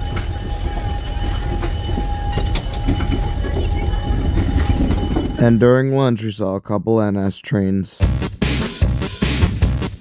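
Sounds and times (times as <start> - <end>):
sharp metallic clanks: 0.0 - 5.7
locomotive engine rumble: 0.0 - 5.8.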